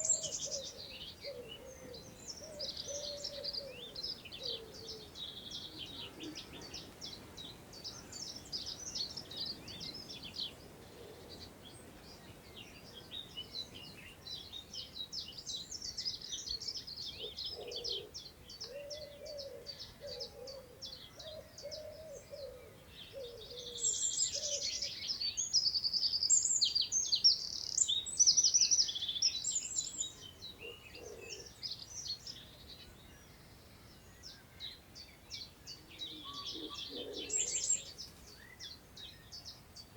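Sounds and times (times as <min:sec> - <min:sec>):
small birds singing: 0:00.0 - 0:39.9
wind in the grass: 0:00.0 - 0:39.9.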